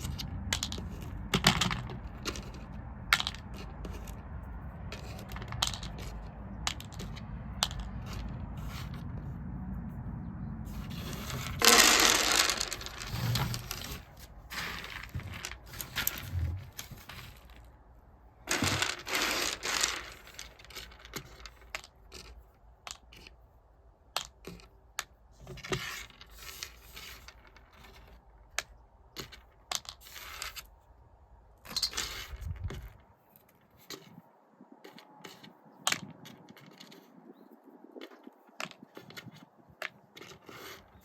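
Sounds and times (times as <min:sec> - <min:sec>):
beans clicking and rattling: 0:00.0 - 0:04.3, 0:04.9 - 0:09.1, 0:10.7 - 0:17.7, 0:18.5 - 0:23.3, 0:31.6 - 0:33.0, 0:34.8 - 0:37.2
beans rustling and scraping: 0:00.0 - 0:23.4, 0:24.2 - 0:30.9, 0:31.6 - 0:34.2, 0:34.8 - 0:41.0.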